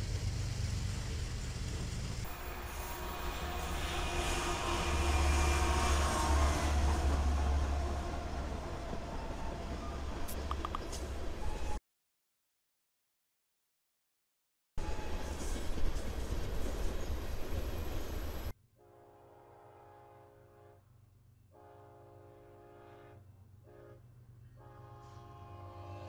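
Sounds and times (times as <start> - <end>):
wheels rumbling on rail: 0.0 - 11.8, 14.8 - 18.5
distant locomotive horn: 2.2 - 10.3, 14.8 - 15.5, 18.8 - 26.0.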